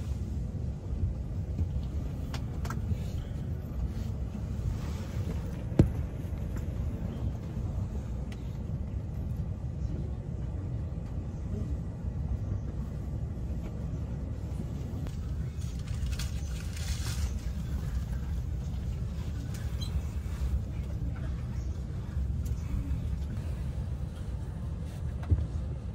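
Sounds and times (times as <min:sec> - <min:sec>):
train interior rumble: 0:00.0 - 0:25.9.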